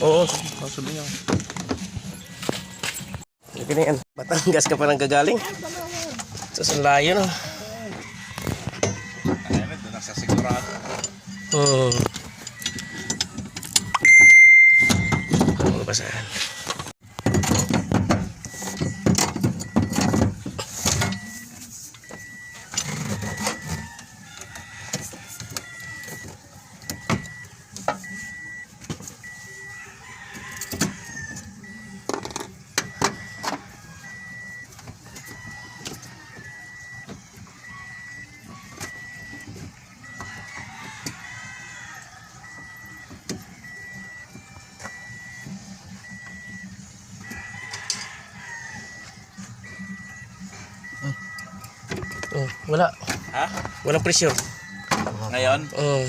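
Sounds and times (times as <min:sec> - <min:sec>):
high electronic beep: 0:03.0 - 0:07.7, 0:08.4 - 0:16.3, 0:17.1 - 0:24.0, 0:25.6 - 0:29.9, 0:31.2 - 0:40.5, 0:42.4 - 0:48.0, 0:48.7 - 0:56.0
clicks and knocks of car work: 0:08.3 - 0:16.0, 0:16.7 - 0:29.3, 0:30.3 - 0:37.4.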